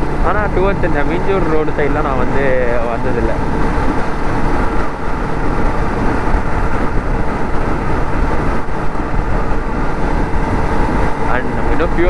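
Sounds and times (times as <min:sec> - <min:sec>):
motorcycle engine cruising: 0:00.0 - 0:12.0
wind rush on microphone: 0:00.0 - 0:12.0.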